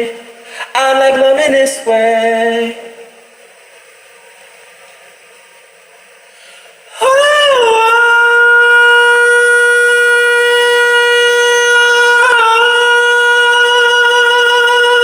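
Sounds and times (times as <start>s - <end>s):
person singing a high held note: 6.9s - 15.0s.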